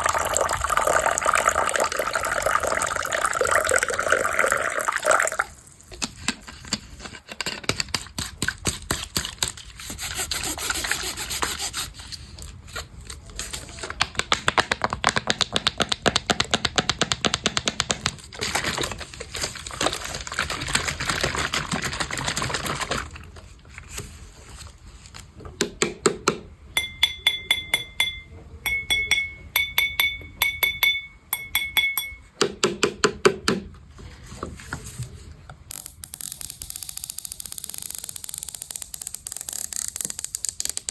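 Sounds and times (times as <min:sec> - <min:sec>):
tapping and clicking: 0:14.0 - 0:18.2.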